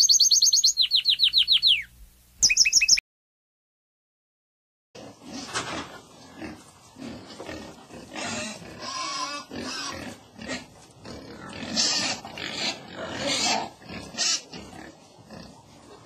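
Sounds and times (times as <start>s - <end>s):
pig grunting: 5.0s - 16.0s
pig squealing: 6.4s - 15.6s.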